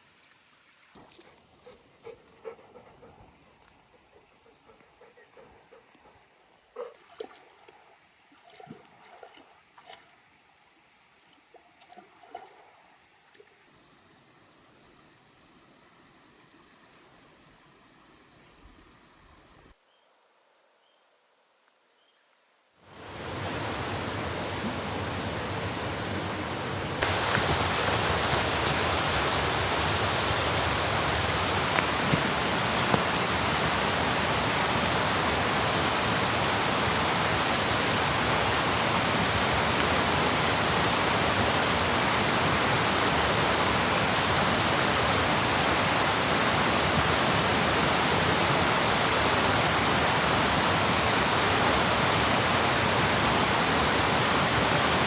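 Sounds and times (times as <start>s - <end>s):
steady rushing noise: 23.0s - 42.2s.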